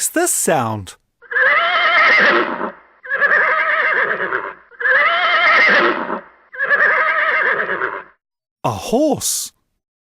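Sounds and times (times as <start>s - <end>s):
horse neighing: 1.2s - 8.2s.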